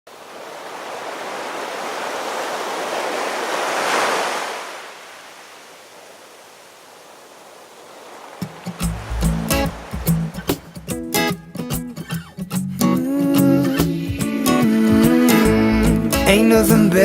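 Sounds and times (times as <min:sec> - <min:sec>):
ocean waves: 0:00.1 - 0:12.2.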